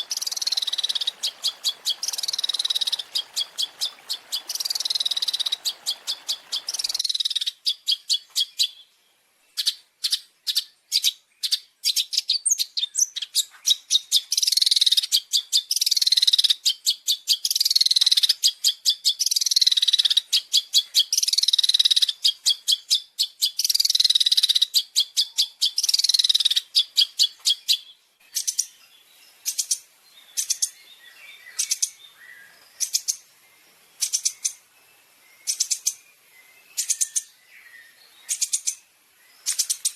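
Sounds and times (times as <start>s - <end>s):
harsh falling bird calls: 0.0s - 7.9s.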